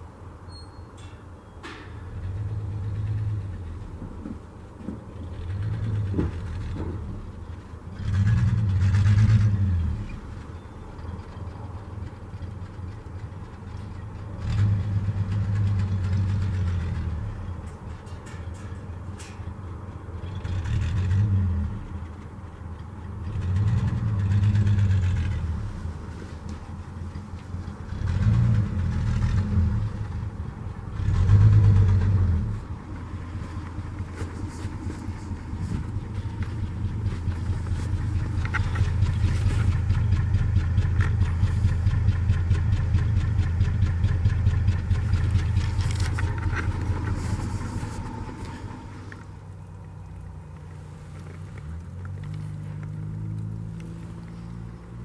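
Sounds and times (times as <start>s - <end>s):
pickup engine revving: 7.9s - 10.4s, 23.2s - 49.6s.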